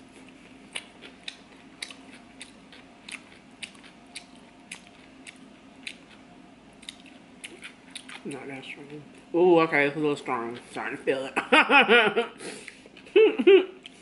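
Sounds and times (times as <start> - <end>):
close chewing with mouth clicks: 0.0 - 8.5, 13.8 - 14.0.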